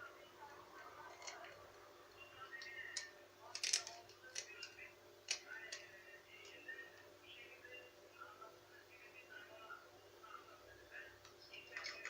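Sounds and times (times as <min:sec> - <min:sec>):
small hard parts clicking: 0:02.6 - 0:06.6.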